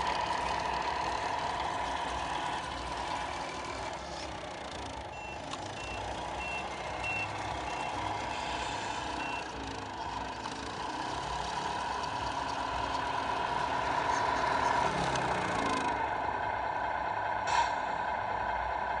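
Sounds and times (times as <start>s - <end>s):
simulated diesel truck engine: 0.0s - 19.0s.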